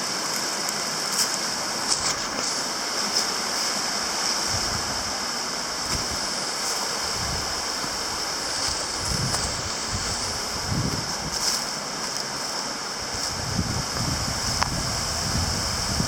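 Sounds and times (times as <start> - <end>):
waterfall rushing: 0.0 - 16.0
wind buffeting microphone: 4.4 - 11.6, 13.0 - 16.0.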